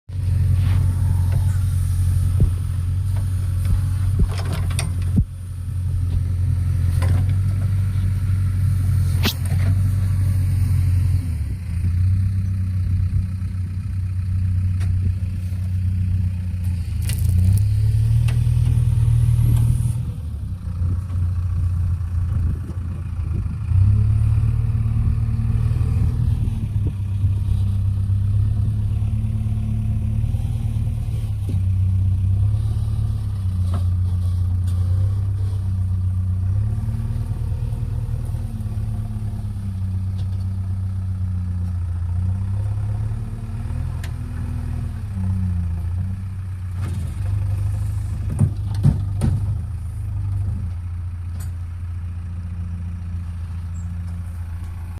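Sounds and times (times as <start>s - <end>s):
car engine rumbling: 0.0s - 54.9s.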